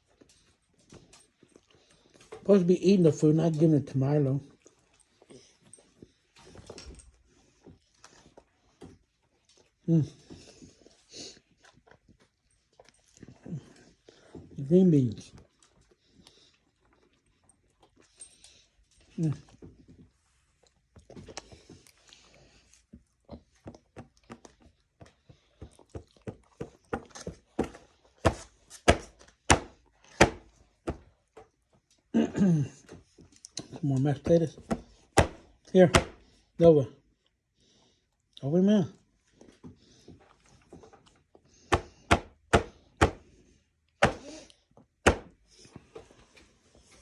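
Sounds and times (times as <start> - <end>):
sharp knocks on hard surface: 27.6 - 31.0, 34.7 - 36.2, 41.7 - 43.2, 44.0 - 44.3, 45.1 - 45.3.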